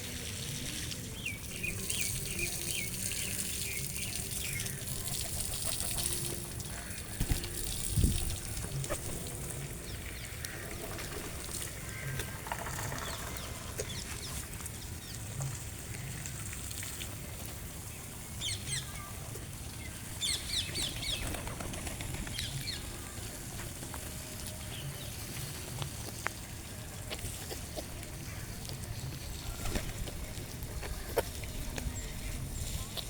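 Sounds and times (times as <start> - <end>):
birds flapping wings: 5.3 - 13.8, 20.6 - 24.5, 29.3 - 31.2.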